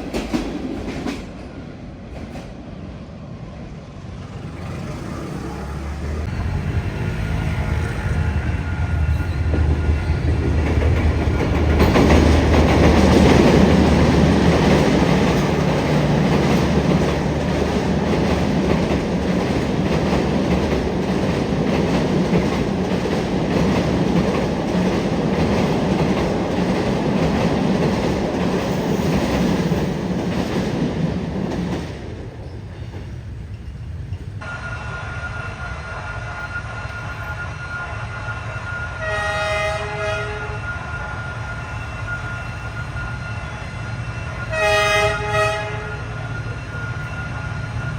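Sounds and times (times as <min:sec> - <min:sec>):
train wheels clickety-clack: 0:00.0 - 0:02.6, 0:07.0 - 0:34.5
diesel engine hum: 0:04.2 - 0:08.6.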